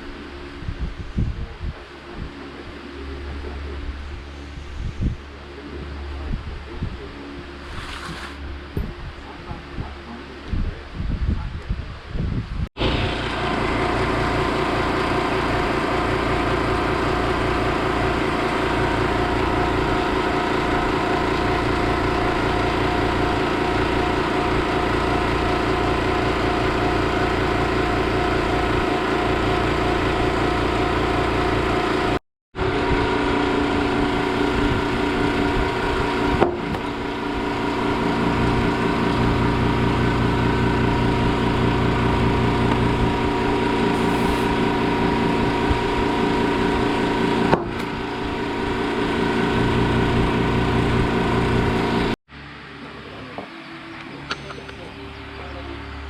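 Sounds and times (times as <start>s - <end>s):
scooter engine idling: 12.8s - 32.2s, 33.5s - 52.1s.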